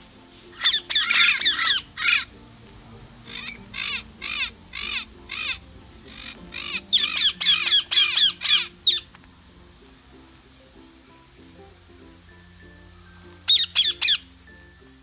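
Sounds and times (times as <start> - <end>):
bird squawking: 0.6 - 2.3, 3.3 - 9.2, 13.5 - 14.4.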